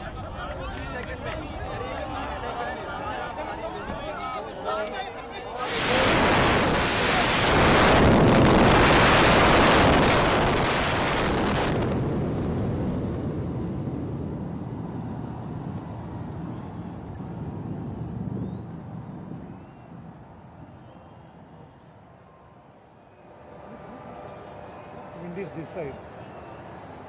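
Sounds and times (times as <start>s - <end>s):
building demolition blast and collapse: 5.6s - 14.4s
low rumble: 5.6s - 19.3s.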